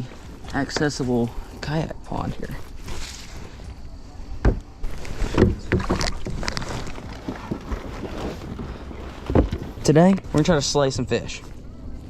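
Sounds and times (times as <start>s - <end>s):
knocks and thumps on kayak hull: 4.4s - 10.6s.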